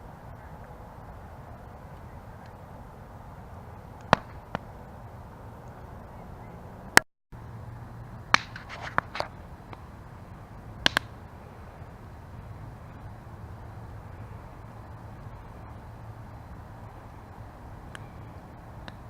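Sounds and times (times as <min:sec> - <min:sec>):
campfire crackling and popping: 0:00.3 - 0:05.9, 0:07.9 - 0:19.0.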